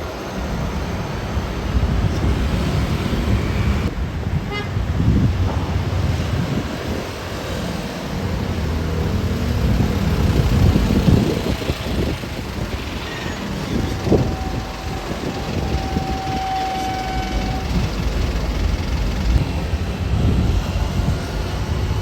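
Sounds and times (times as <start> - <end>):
vehicle engines passing: 0.4 - 22.0
car horn: 4.4 - 4.8, 13.1 - 18.0.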